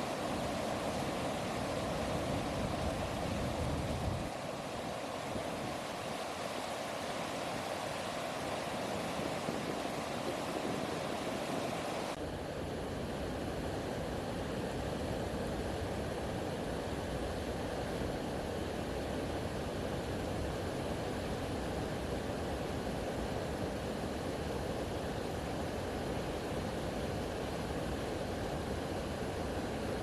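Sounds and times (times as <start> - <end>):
river water rushing: 0.0 - 12.2.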